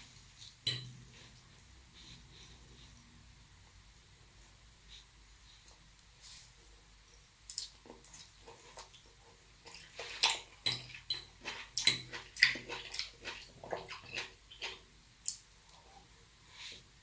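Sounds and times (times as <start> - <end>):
wet crackly chewing: 7.5 - 15.9.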